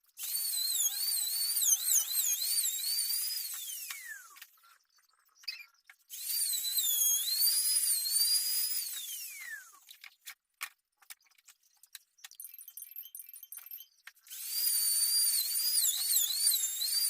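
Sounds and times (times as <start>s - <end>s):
power tool whining: 0.2s - 4.8s, 5.5s - 9.9s, 13.6s - 17.0s.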